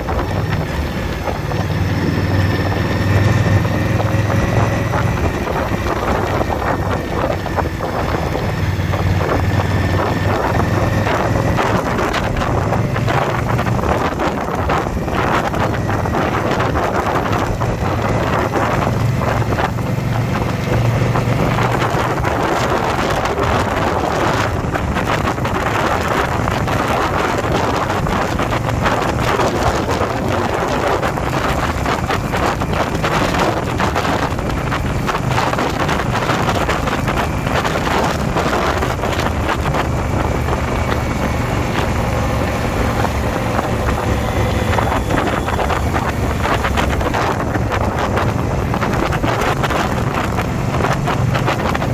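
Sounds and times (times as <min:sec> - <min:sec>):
motorcycle engine droning: 0:00.0 - 0:51.9
wind buffeting microphone: 0:00.0 - 0:51.9.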